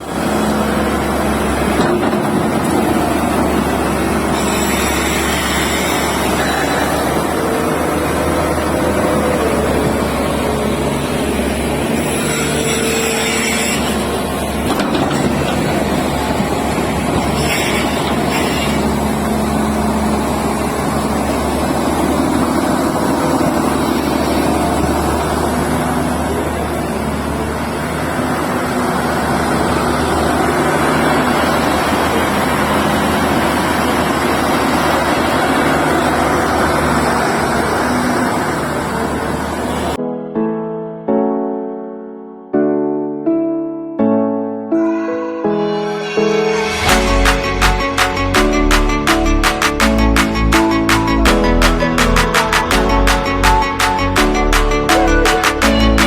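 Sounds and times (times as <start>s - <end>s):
excavator diesel engine running: 0.0s - 40.0s, 46.8s - 56.0s
whine shifting in pitch: 44.8s - 56.0s.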